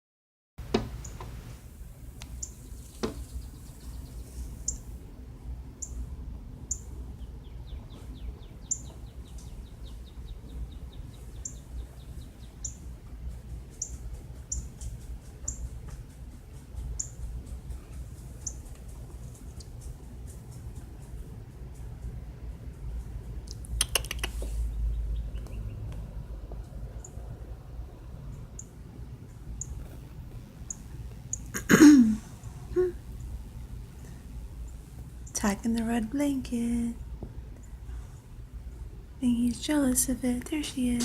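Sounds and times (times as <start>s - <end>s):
steady low hum: 0.6s - 41.0s
bird chip calls: 2.3s - 4.9s, 6.7s - 12.9s, 13.8s - 14.8s, 15.4s - 15.6s.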